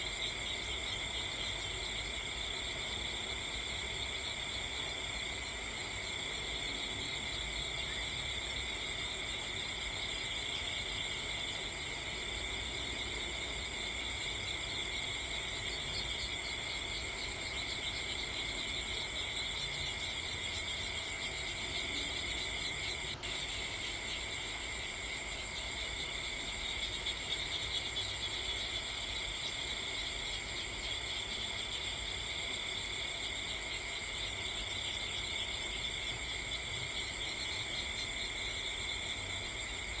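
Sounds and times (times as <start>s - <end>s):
crickets chirring: 0.0s - 40.0s.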